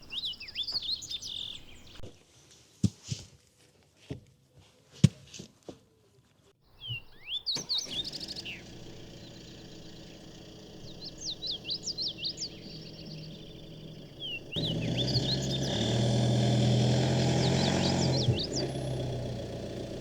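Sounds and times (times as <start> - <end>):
songbirds chirping: 0.0 - 2.4, 6.6 - 20.0.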